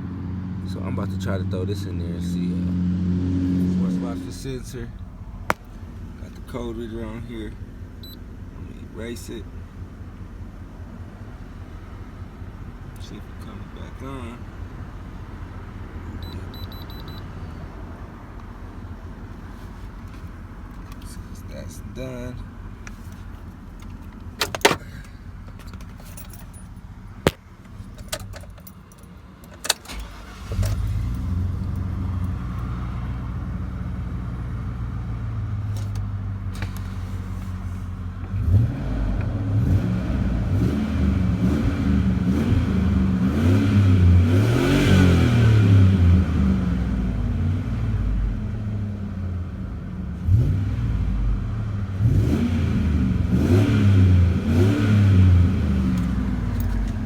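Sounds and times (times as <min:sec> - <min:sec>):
car engine starting and revving: 0:00.0 - 0:57.0
keys jangling: 0:23.8 - 0:26.8, 0:27.7 - 0:29.9, 0:56.0 - 0:57.0.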